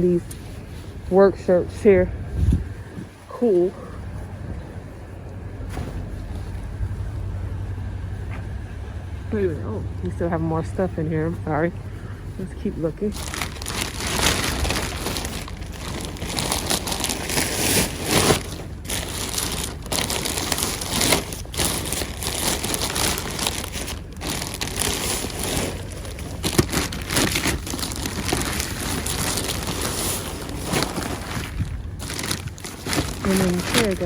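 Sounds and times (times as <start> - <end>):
plastic bags crinkling: 0.0 - 34.0
knocks and clatters of items: 13.1 - 34.0.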